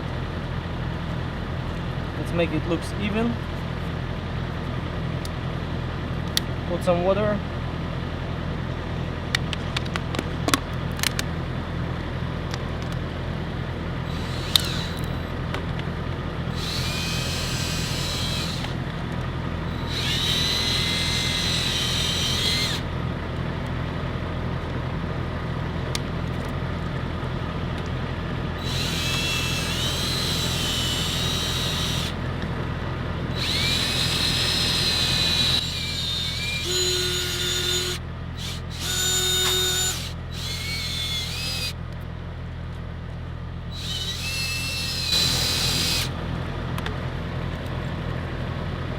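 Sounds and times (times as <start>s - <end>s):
steady low hum: 11.4s - 48.9s
drill whine: 14.1s - 15.4s, 16.5s - 18.9s, 19.6s - 23.0s, 28.6s - 32.2s, 33.3s - 41.8s, 43.7s - 46.2s.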